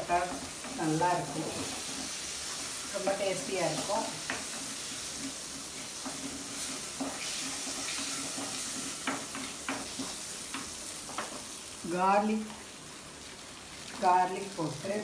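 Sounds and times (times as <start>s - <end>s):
butter sizzling in pan: 0.0s - 15.0s
spoon knocking against pan: 7.0s - 11.4s.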